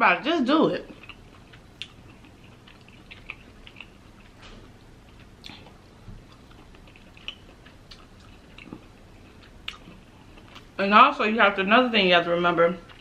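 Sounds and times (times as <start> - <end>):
person chewing crab meat: 0.9 - 10.8.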